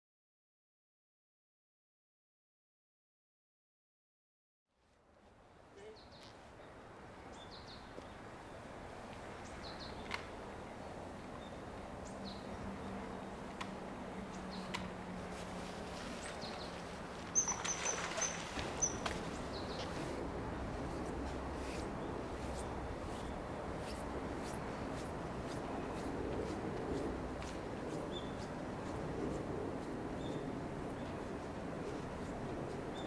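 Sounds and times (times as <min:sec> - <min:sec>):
outdoor ambience: 0:04.7 - 0:33.0
high bird chirps: 0:17.3 - 0:19.9.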